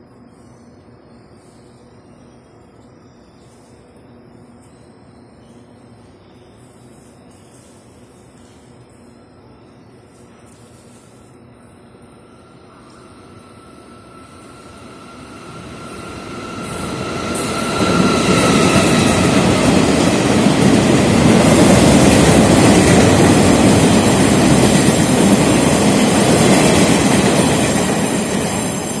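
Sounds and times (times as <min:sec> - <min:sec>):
high whine: 0:08.8 - 0:29.0
train wheels rumbling and rattling: 0:15.0 - 0:29.0.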